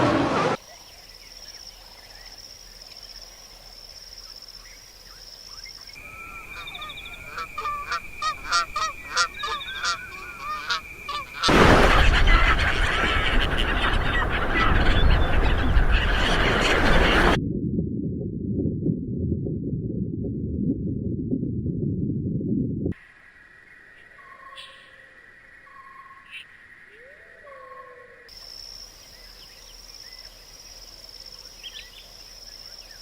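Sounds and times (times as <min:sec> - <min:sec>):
loud dense rushing noise: 0:00.0 - 0:00.6
geese honking: 0:06.0 - 0:17.4.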